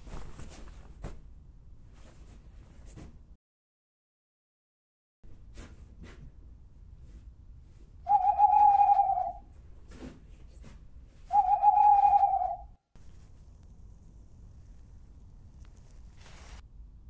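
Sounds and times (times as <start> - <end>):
owl hooting: 8.1 - 9.5, 11.3 - 12.7.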